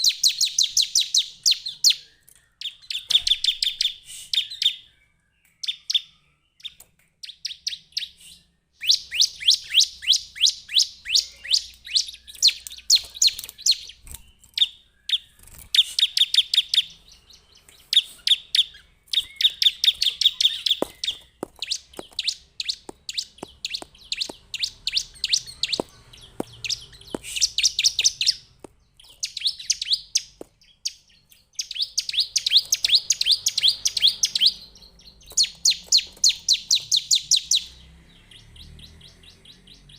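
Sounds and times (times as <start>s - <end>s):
bird high chipping calls: 0.0s - 39.9s.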